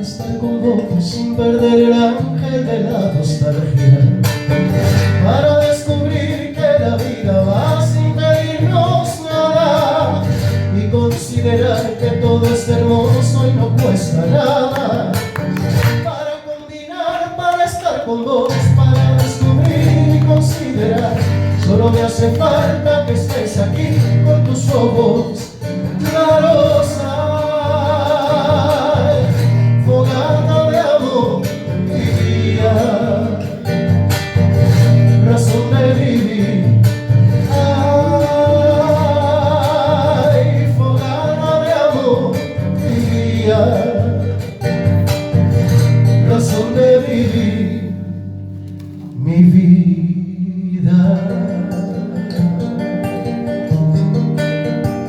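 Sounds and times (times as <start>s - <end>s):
strummed acoustic guitar: 0.0s - 55.0s.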